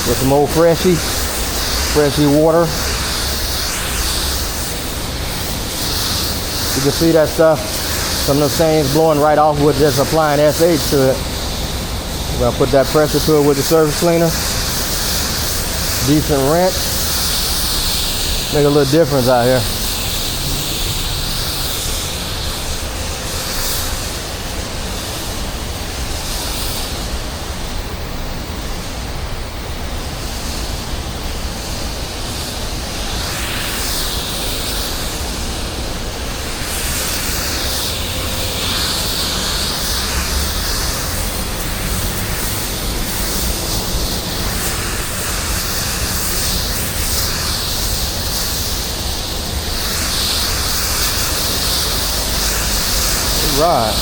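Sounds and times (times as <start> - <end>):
pressure washer spraying concrete: 0.0 - 54.0.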